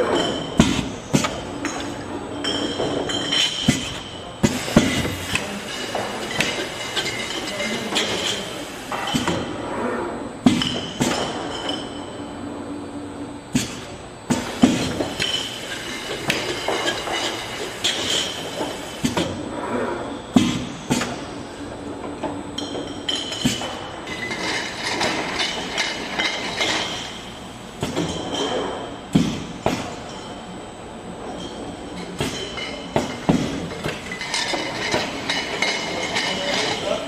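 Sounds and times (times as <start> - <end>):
bottles clinking: 0.0 - 9.5, 10.5 - 12.2, 13.6 - 19.3, 22.6 - 30.5, 31.3 - 37.0
bottle-filling machine clatter: 0.1 - 9.5, 13.6 - 19.4, 22.6 - 30.3, 31.3 - 37.0.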